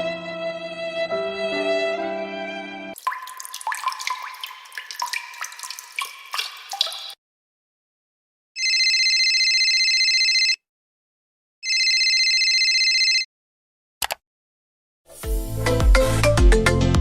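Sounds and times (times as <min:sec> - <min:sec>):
telephone ringing: 0:08.6 - 0:10.6, 0:11.6 - 0:13.3.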